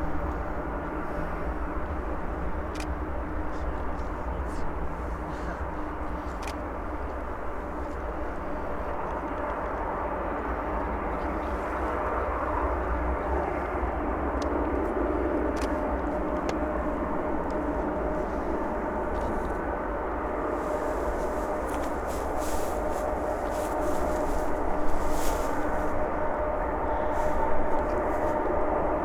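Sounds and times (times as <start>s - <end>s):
jet engines running: 0.0s - 29.0s.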